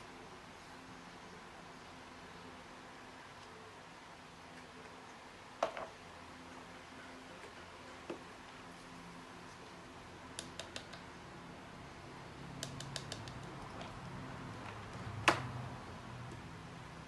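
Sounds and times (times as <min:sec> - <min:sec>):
small sharp clicks and taps: 0:10.3 - 0:11.1, 0:12.6 - 0:13.9.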